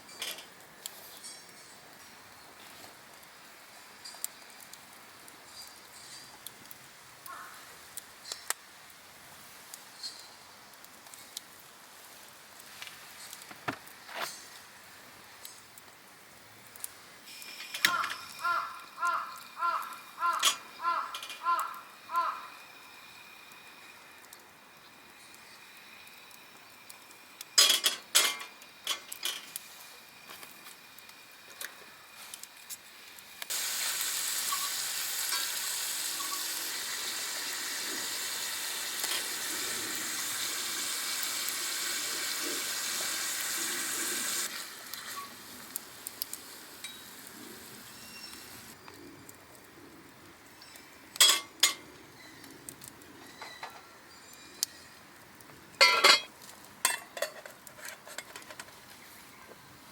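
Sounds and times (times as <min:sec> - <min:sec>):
food sizzling in a pan: 0:17.2 - 0:48.8
metal cookware clinking: 0:27.6 - 0:29.5, 0:51.2 - 0:51.8, 0:55.8 - 0:58.4.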